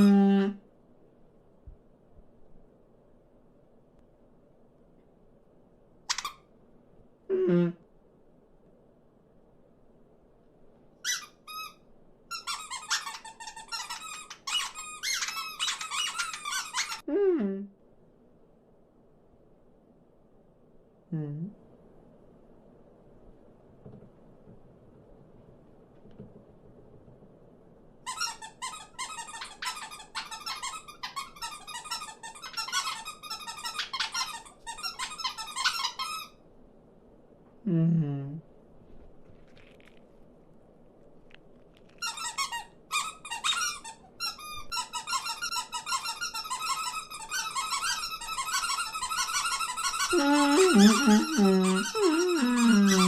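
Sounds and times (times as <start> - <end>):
high-pitched squeaky chirping: 11.0 - 17.1, 28.1 - 36.3, 41.9 - 53.0.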